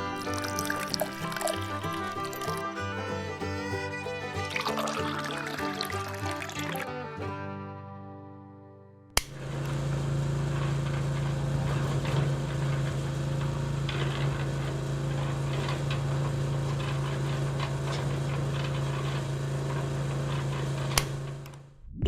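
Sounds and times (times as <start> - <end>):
small motor humming: 0.0 - 6.9.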